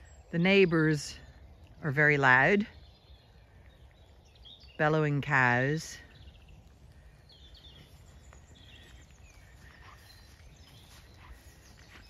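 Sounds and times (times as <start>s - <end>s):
faint bird chirps: 6.0s - 12.0s.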